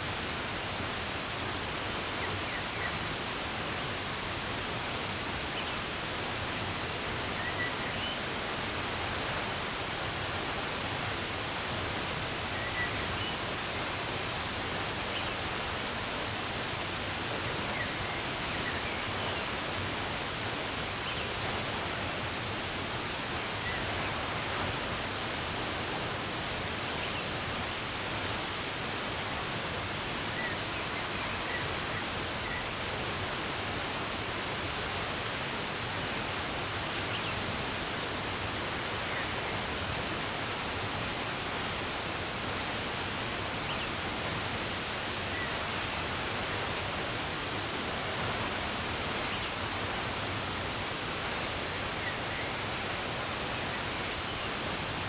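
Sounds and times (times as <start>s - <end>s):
running water rushing: 0.0s - 55.0s.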